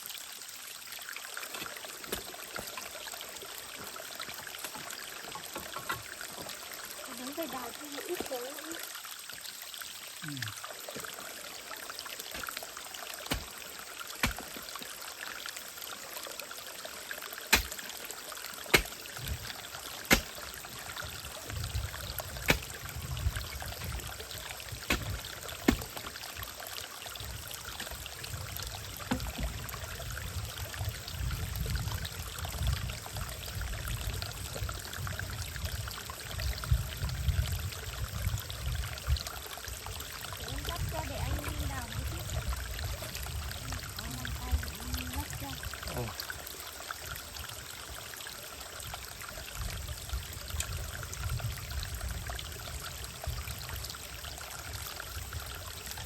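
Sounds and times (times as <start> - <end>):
digging tool striking stony ground: 12.3 - 12.6, 13.3 - 13.6, 14.2 - 14.6, 17.5 - 17.9, 18.7 - 20.6, 22.4 - 22.8, 24.8 - 26.2.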